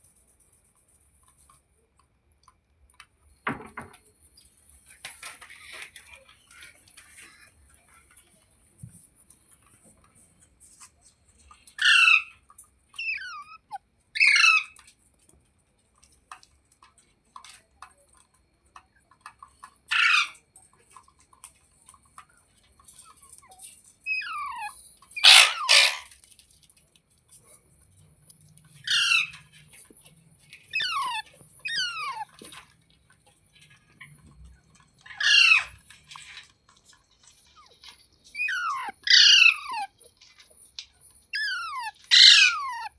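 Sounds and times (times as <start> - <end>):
parrot high calls: 11.8 - 12.4, 13.0 - 14.8, 19.9 - 20.4, 24.0 - 26.2, 28.8 - 29.4, 30.7 - 32.6, 35.0 - 35.8, 38.3 - 40.0, 41.3 - 42.9.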